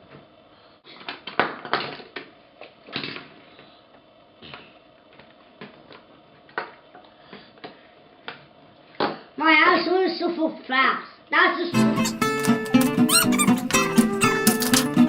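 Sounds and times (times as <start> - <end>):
toy car clattering on plastic track: 0.9 - 3.4, 14.4 - 15.0.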